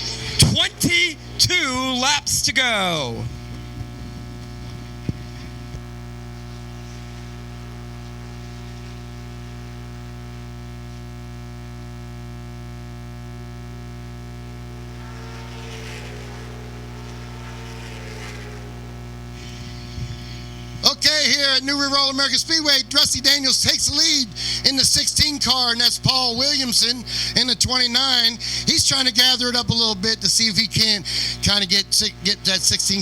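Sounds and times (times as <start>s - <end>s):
electrical mains hum: 0.0s - 33.0s
faint wavering sound: 14.6s - 21.1s.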